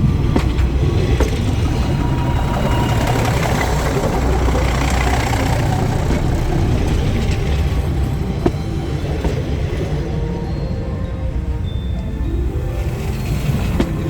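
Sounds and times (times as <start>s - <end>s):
train rumbling over track: 0.0s - 14.0s.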